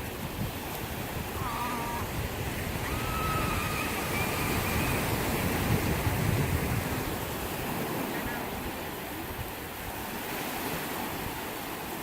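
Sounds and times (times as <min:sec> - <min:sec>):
sea waves breaking: 0:00.0 - 0:12.0.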